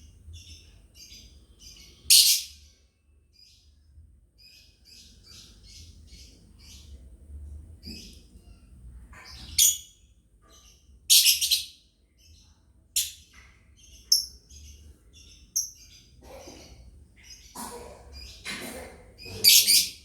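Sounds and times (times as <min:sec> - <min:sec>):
lovebird high-pitched calls: 0:02.1 - 0:02.6, 0:09.4 - 0:10.0, 0:11.1 - 0:11.8, 0:19.2 - 0:20.0
lovebird chattering chirps: 0:11.1 - 0:11.7.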